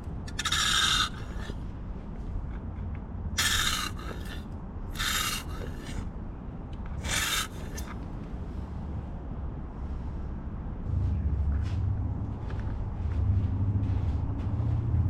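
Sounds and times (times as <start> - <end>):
rasping rubbing strokes: 0.3 - 1.7, 3.4 - 6.1, 7.0 - 8.0.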